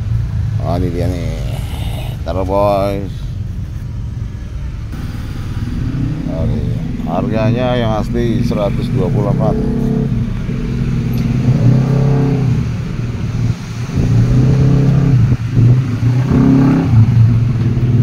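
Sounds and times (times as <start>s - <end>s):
motorcycle engine running: 4.6s - 18.0s.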